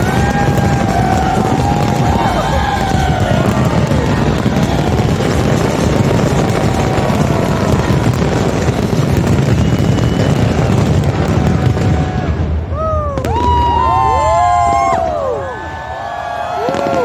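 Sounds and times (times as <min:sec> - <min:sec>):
crowd whooping and cheering: 0:00.0 - 0:17.0
fireworks exploding: 0:00.0 - 0:17.0.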